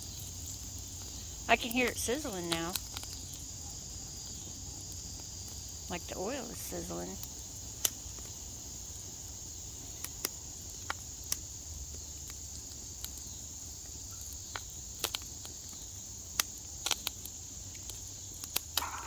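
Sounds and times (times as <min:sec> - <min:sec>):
oil sizzling: 0:00.0 - 0:03.4
popcorn popping: 0:00.0 - 0:03.6, 0:09.8 - 0:19.0
crickets chirping: 0:00.0 - 0:19.0.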